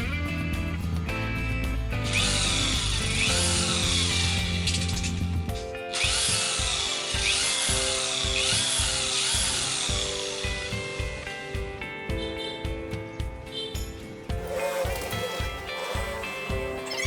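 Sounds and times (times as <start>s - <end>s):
background music: 0.0s - 17.0s
electric drill running: 14.4s - 17.0s.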